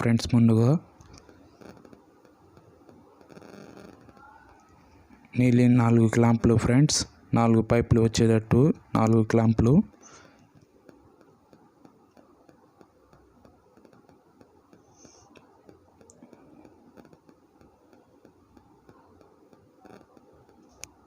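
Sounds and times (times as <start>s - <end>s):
small ticks: 1.0s - 5.2s, 10.0s - 21.0s.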